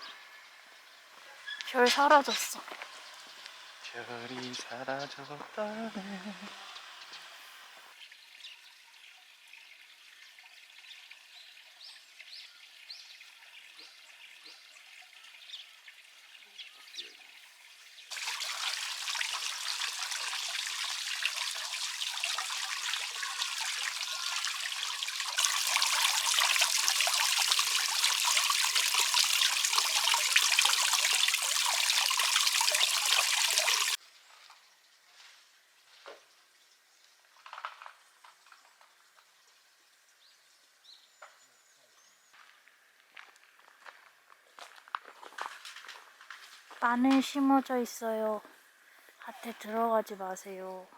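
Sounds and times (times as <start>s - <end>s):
running water rushing: 18.1s - 34.0s.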